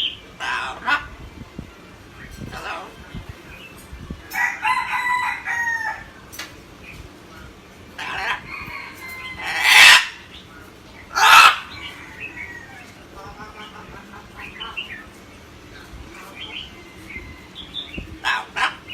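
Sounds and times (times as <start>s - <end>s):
parrot crowing call: 0.4s - 1.1s, 4.3s - 6.2s, 8.0s - 10.3s, 11.1s - 13.8s, 16.5s - 18.9s
parrot screeching: 0.4s - 1.1s, 2.5s - 3.0s, 8.0s - 10.3s, 11.1s - 13.5s, 18.2s - 18.9s.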